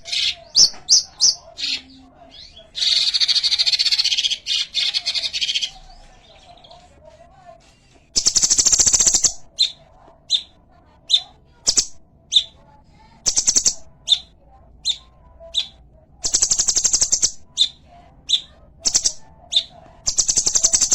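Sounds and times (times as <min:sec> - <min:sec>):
songbird trilling: 0:08.2 - 0:10.5, 0:11.1 - 0:12.5, 0:13.3 - 0:20.9.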